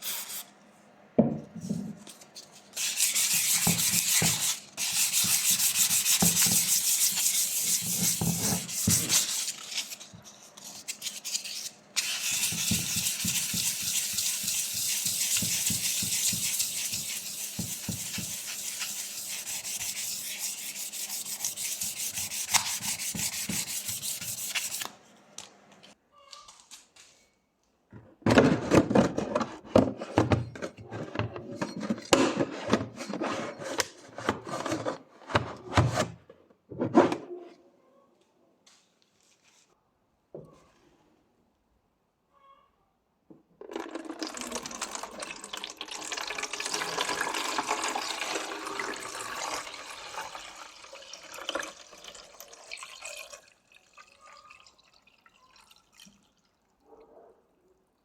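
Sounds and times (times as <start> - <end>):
parts knocking and clattering: 27.9 - 33.0.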